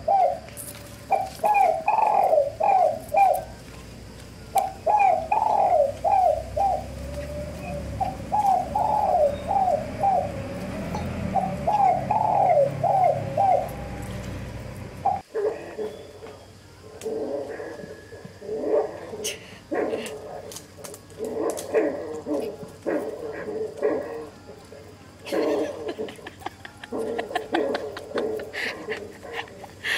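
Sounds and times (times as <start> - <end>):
bird singing: 0.0 - 18.8.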